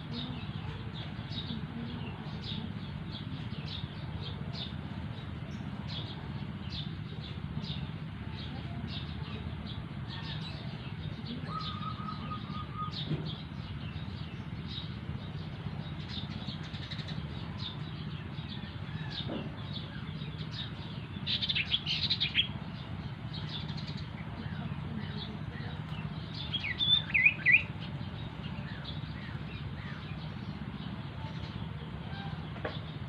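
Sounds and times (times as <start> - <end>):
steady low hum: 0.0 - 33.0
bird chirping: 10.2 - 33.0.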